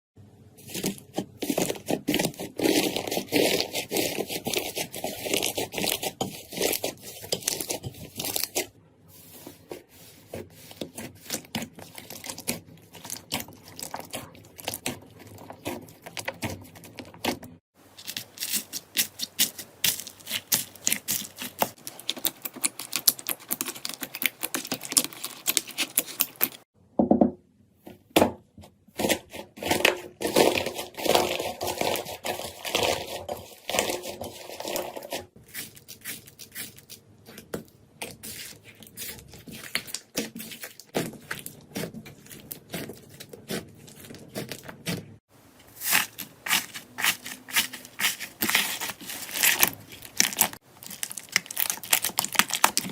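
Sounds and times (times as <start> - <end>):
slime crackling and popping: 18.0 - 26.6, 45.8 - 52.9.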